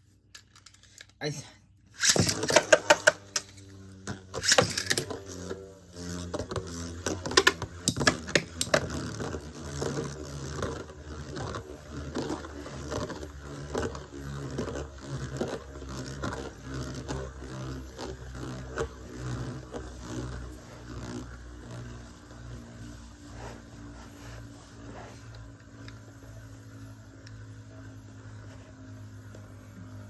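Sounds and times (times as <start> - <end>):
spinning tops whirring scrape: 1.9 - 30.0
metal spinning tops clashing: 2.0 - 3.5, 4.4 - 5.1.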